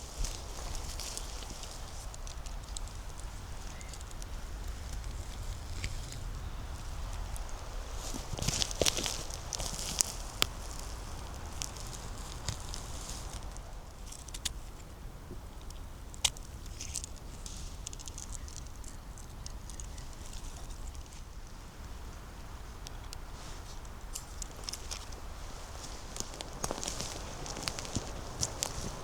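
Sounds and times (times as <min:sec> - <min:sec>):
twigs and leaves crackling underfoot: 0:00.0 - 0:29.0.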